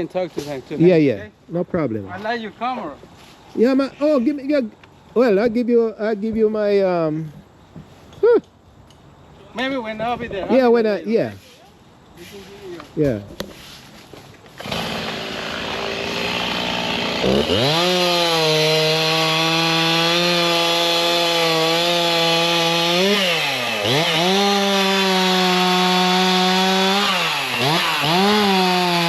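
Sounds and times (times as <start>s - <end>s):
chainsaw revving: 14.6s - 29.0s.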